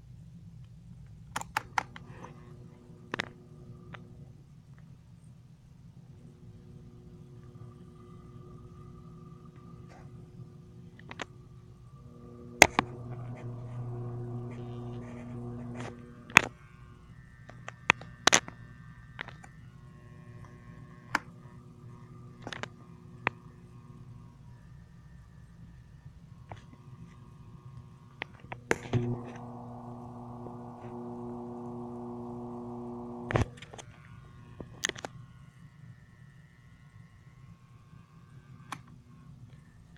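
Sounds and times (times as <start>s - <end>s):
fan motor hum: 6.0s - 35.1s
sharp clicks and knocks: 28.7s - 31.0s.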